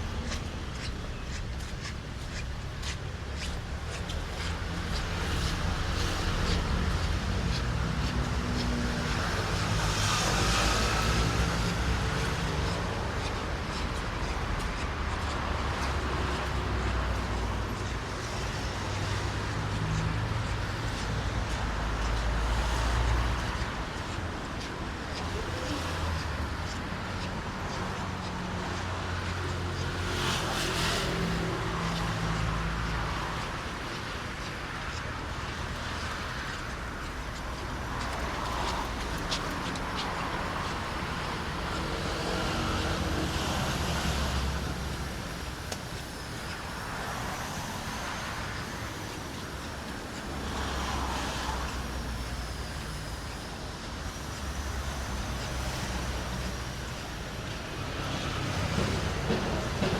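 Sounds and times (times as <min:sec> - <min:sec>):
cars passing on wet road: 0:00.0 - 0:59.9.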